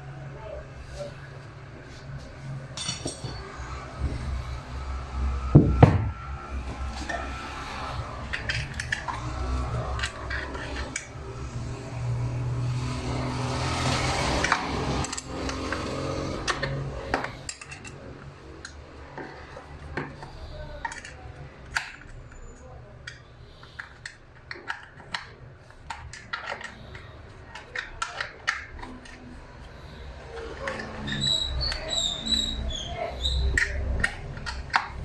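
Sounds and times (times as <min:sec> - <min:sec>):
metal tools clinking and scraping: 0:01.9 - 0:04.7.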